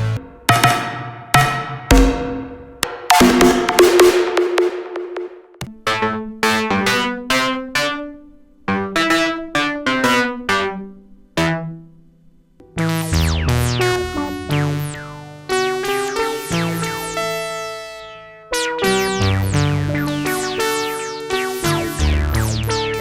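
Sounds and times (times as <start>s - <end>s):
plucked synthesizer notes: 12.6s - 23.0s
synthesizer chords with bass: 12.8s - 23.0s.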